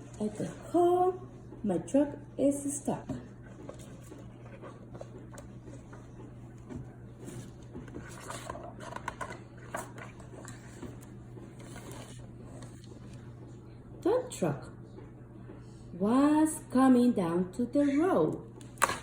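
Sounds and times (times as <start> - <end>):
low steady hum: 0.0 - 19.0
handling noises: 3.0 - 13.3.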